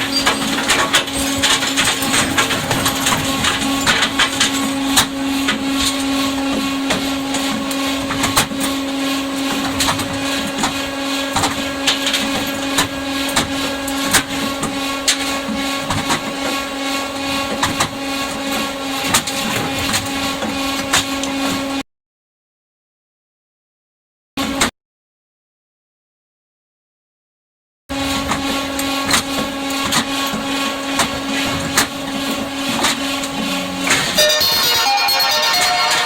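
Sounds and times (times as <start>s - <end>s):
metal clanks and knocks: 0.0s - 16.6s
motor hum: 0.0s - 21.8s, 27.9s - 36.0s.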